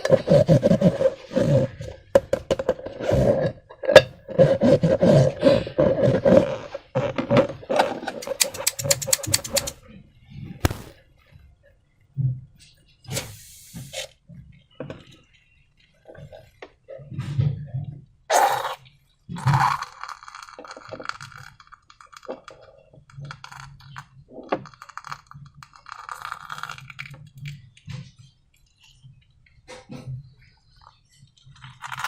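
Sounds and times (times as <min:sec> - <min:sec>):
hands working slime: 0:08.1 - 0:09.7
crackles and clicks of plastic: 0:18.8 - 0:32.0.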